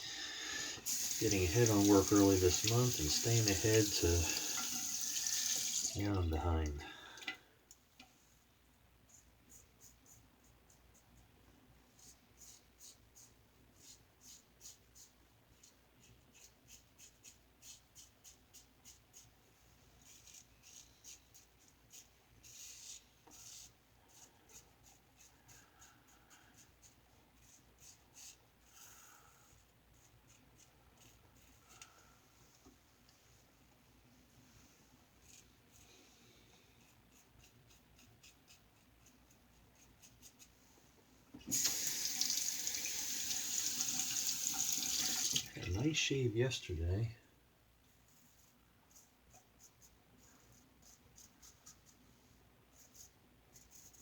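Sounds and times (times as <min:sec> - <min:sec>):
tap water running into sink: 0:00.8 - 0:06.3, 0:41.4 - 0:45.7.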